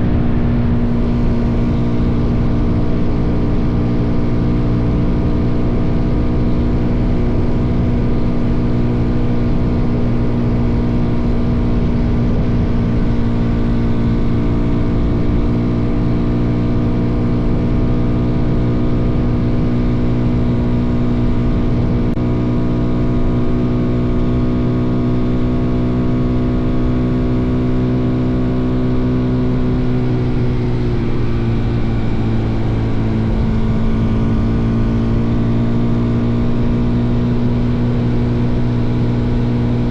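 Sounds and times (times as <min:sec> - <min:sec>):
wind rumbling on microphone: 0:00.0 - 0:22.8
motorcycle engine running: 0:00.0 - 0:39.9.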